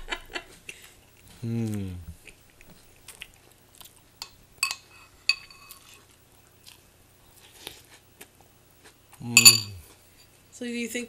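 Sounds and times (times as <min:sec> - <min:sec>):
chewing cereal: 0:00.8 - 0:04.2, 0:05.6 - 0:09.3
spoon clinking against bowl: 0:04.2 - 0:05.9, 0:09.4 - 0:09.8.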